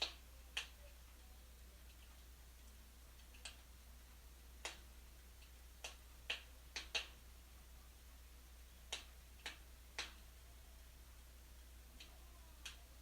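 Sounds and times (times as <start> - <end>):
wood fire crackling and popping: 1.8 - 7.2.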